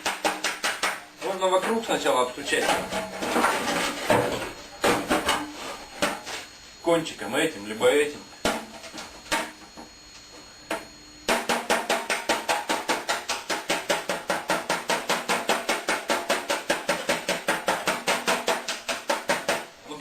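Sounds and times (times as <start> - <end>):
hammer tapping sheet metal: 0.0 - 1.9, 10.7 - 19.7.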